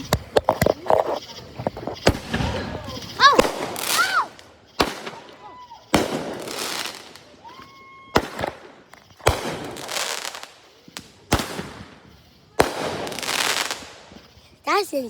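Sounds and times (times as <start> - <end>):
fireworks bangs with crackling hiss: 0.0 - 15.0
rising firework whistle: 2.0 - 11.0.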